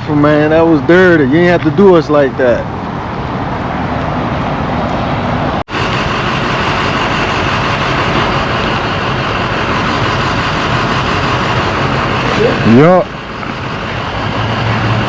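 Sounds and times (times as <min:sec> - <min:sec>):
rushing wind: 0:00.0 - 0:15.0
motorcycle road noise on wet road: 0:05.0 - 0:15.0.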